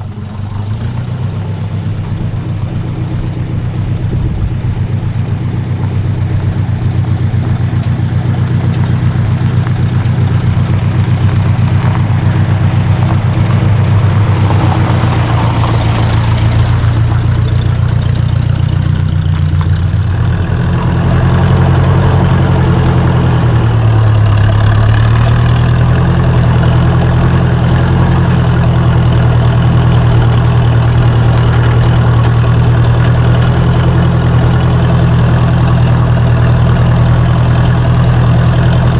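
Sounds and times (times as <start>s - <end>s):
tractor engine running: 0.0s - 38.9s
rushing noise: 10.5s - 18.8s.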